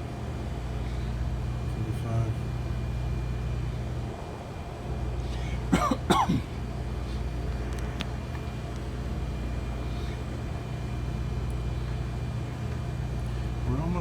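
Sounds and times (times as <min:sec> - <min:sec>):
refrigerator compressor hum: 0:00.0 - 0:14.0
person coughing: 0:05.7 - 0:06.6.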